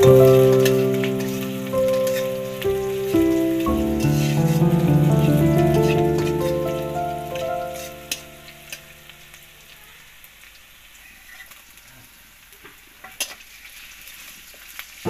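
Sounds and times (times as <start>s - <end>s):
metal spatula stirring: 0.0s - 8.9s
onions sizzling in oil: 0.0s - 15.0s.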